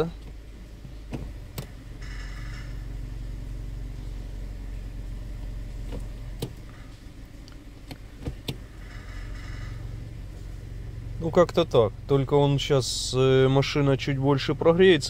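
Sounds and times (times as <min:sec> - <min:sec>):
car engine running: 0:00.0 - 0:15.0
sharp knocks under hood: 0:00.3 - 0:02.6, 0:05.8 - 0:06.7, 0:07.9 - 0:08.7.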